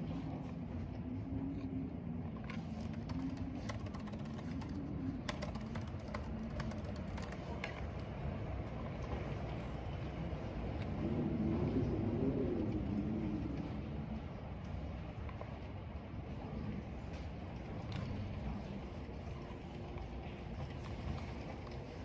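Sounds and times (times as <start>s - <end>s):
wind and rain rumble: 0.0s - 22.0s
typing on computer keyboard: 2.4s - 8.1s.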